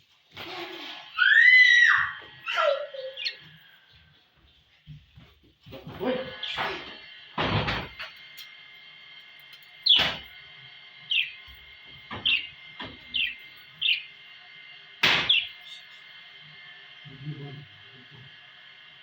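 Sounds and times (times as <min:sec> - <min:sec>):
budgerigars chirping: 0:02.5 - 0:03.5, 0:11.1 - 0:11.4, 0:12.2 - 0:14.1, 0:15.1 - 0:15.9
sharp knocks: 0:15.0 - 0:15.5.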